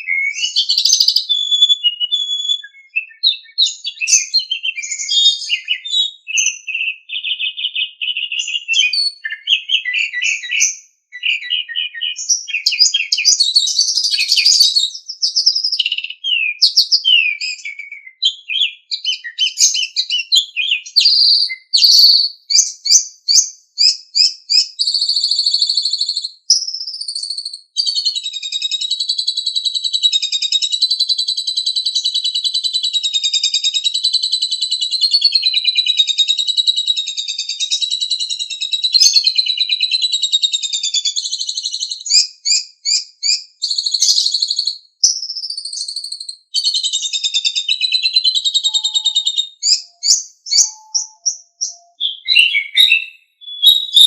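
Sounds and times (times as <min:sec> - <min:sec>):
starling chirping and warbling: 0:19.0 - 0:23.4, 0:46.6 - 0:54.0.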